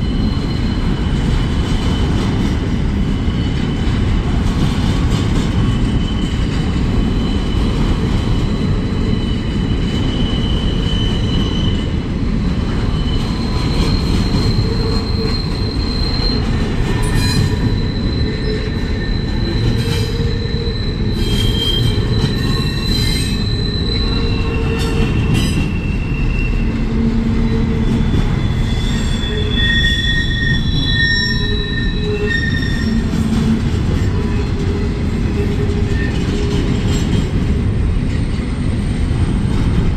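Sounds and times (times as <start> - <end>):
wheels rumbling on rail: 0.0 - 39.9
high-pitched wheel squeals: 5.9 - 12.0, 12.9 - 37.0.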